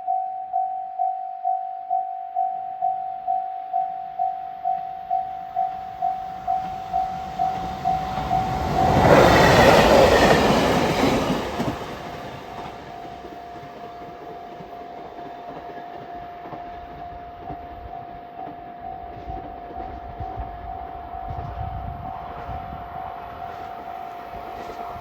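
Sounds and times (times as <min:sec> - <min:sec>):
level-crossing warning bell: 0:00.0 - 0:25.0
train passing: 0:05.0 - 0:25.0.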